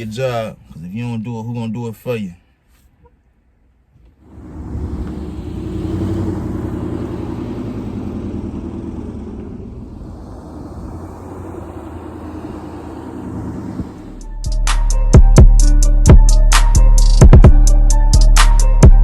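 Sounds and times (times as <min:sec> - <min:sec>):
vehicle engine rumbling: 0:04.0 - 0:19.0.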